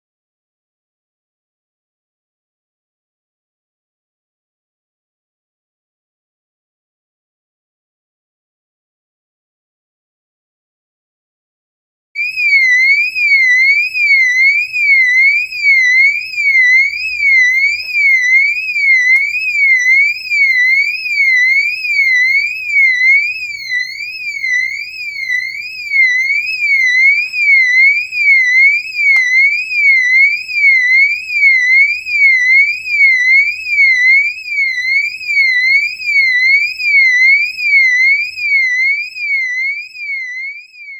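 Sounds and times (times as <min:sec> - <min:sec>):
electronic alarm siren wailing: 0:12.2 - 0:40.9.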